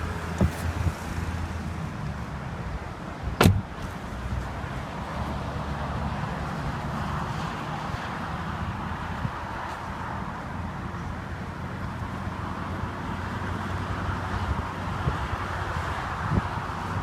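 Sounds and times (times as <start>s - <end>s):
sharp roof clunk: 0.2s - 0.9s
convertible roof mechanism humming: 0.3s - 0.8s.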